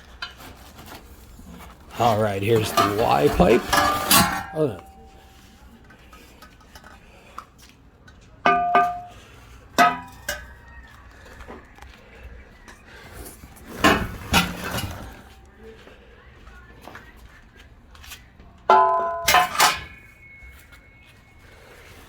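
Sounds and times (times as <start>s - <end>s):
metal pipes knocking and ringing: 2.5s - 5.2s, 8.4s - 9.2s, 9.8s - 10.5s, 18.7s - 20.1s.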